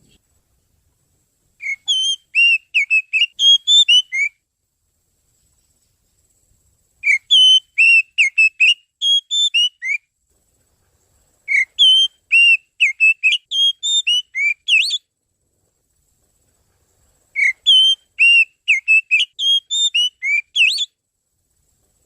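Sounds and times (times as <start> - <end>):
bird whistling song: 1.6 - 4.4, 7.0 - 10.1, 11.5 - 15.1, 17.3 - 21.0.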